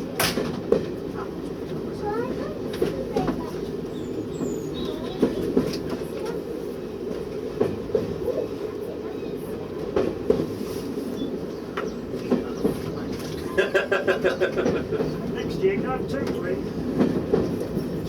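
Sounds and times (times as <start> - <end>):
train rumbling: 0.0 - 18.0
wheels clicking over rail joints: 0.1 - 6.5, 11.7 - 18.0.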